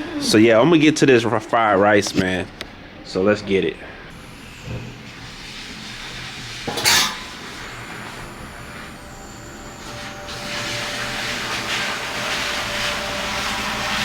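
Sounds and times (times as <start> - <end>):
griddle hissing: 4.1 - 14.0
metal cookware clanking: 6.6 - 7.6.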